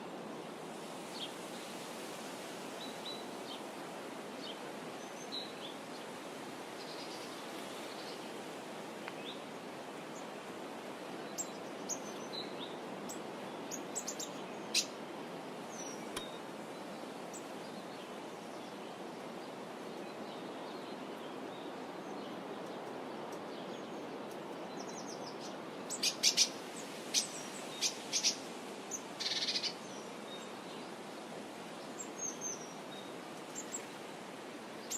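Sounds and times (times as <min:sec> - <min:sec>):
steady outdoor hiss: 0:00.0 - 0:34.9
small birds chirping: 0:11.3 - 0:15.0, 0:19.8 - 0:30.9.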